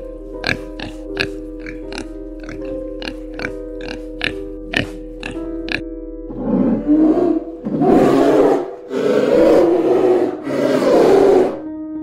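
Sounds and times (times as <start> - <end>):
faint background music: 0.0 - 12.0
big cat roaring: 6.3 - 11.6.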